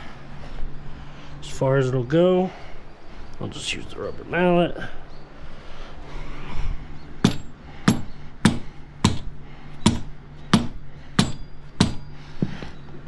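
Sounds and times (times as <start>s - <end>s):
rubber mallet striking tire: 9.9s - 12.1s.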